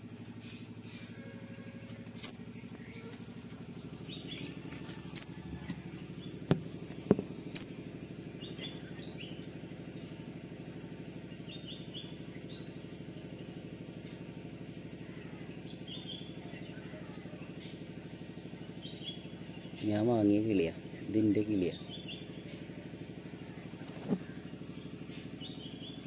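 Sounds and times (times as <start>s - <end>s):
steady low hum: 0.0s - 26.0s
sunbird sharp high chirps: 0.4s - 3.1s, 4.0s - 5.4s, 7.4s - 9.5s
small knocks: 6.5s - 7.4s.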